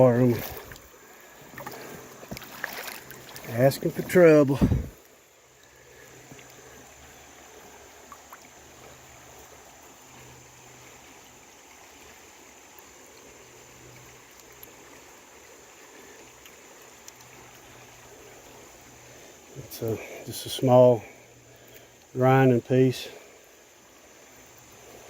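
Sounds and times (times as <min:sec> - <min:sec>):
creek water flowing: 0:00.0 - 0:25.0
faint clicks: 0:14.3 - 0:14.8, 0:16.3 - 0:17.6.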